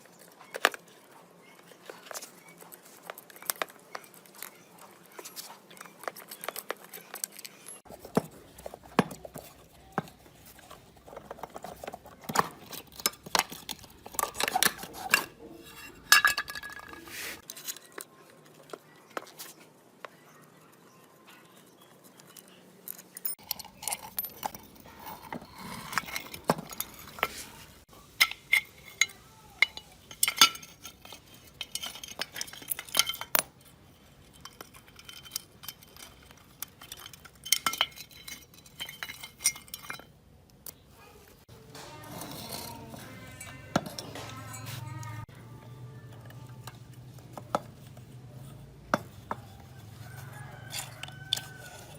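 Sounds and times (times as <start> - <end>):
metal tools clinking and knocking: 0.0 - 18.0, 21.8 - 51.9.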